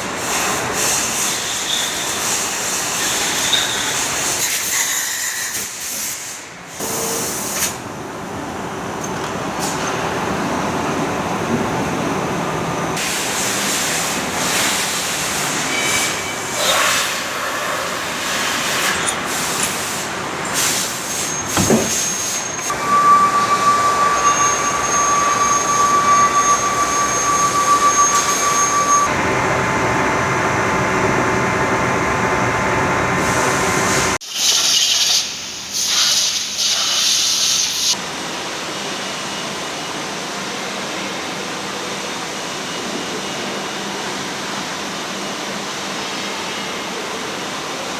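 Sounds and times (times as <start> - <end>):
machine tools hissing and scraping: 18.2 - 29.1
high machine whine: 20.2 - 34.2.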